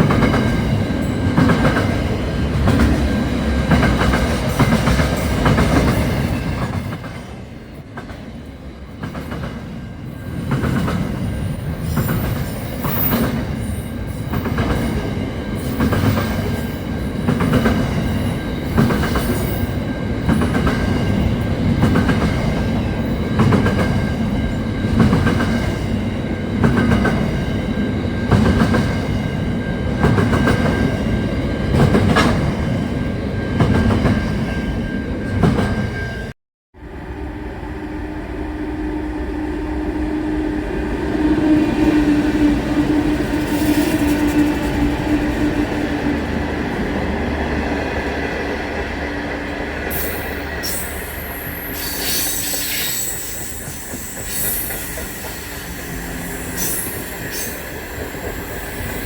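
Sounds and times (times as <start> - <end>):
train rumble: 0.0 - 36.2, 36.8 - 59.0
train wheels clicking over rail joints: 48.7 - 59.0.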